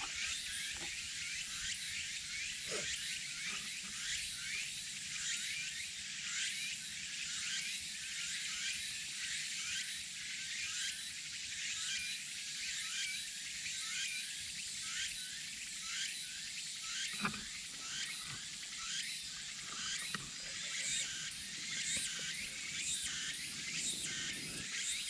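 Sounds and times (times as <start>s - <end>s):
insects chirping: 17.3s - 25.0s.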